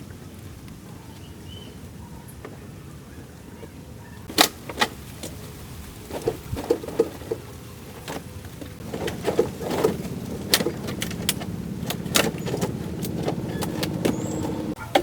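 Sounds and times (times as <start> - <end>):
steady motor hum: 6.5 - 15.0
sharp metallic clicks and knocks: 8.1 - 15.0.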